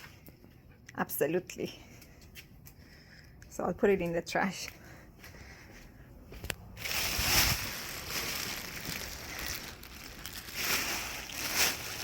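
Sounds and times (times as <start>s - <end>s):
dry leaf rustling and crackling: 6.8s - 12.0s.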